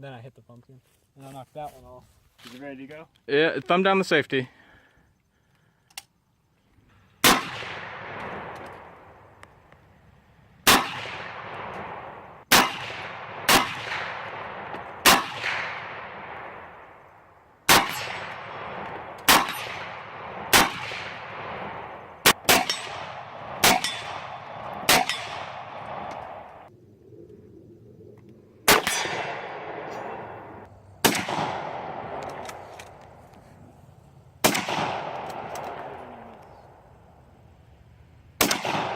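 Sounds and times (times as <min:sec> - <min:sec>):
gunshots with long echo: 0:07.1 - 0:09.4, 0:10.6 - 0:26.7, 0:28.6 - 0:32.8, 0:34.4 - 0:36.8, 0:38.4 - 0:38.9.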